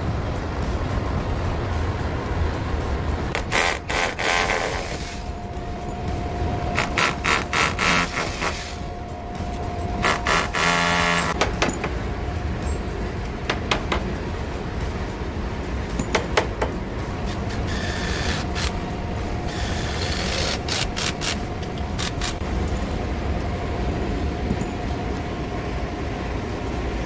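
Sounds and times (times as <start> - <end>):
faint steady hum: 0.0 - 27.0
ventilation fan drone: 0.0 - 27.0
clicks and knocks of work: 9.4 - 15.2, 15.8 - 18.8.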